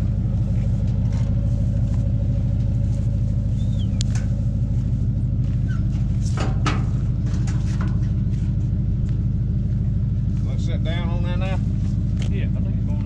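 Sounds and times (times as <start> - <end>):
truck engine idling: 0.0 - 13.0
knocks and clanks: 5.4 - 9.2.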